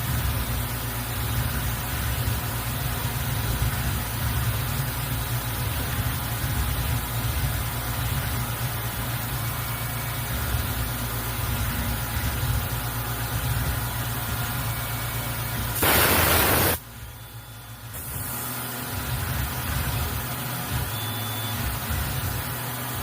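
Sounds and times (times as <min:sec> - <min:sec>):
cnc mill humming and whining: 0:00.0 - 0:23.0
loud hiss: 0:15.2 - 0:16.8, 0:17.8 - 0:18.8.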